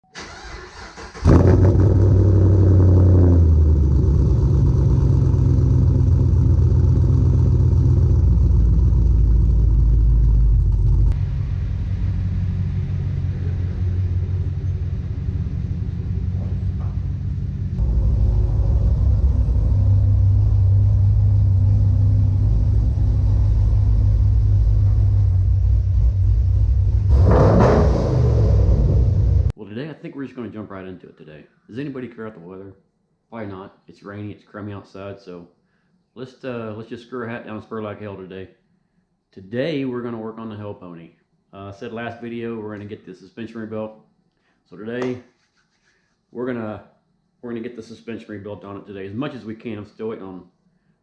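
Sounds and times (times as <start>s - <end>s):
car engine rumbling: 0.4s - 29.5s.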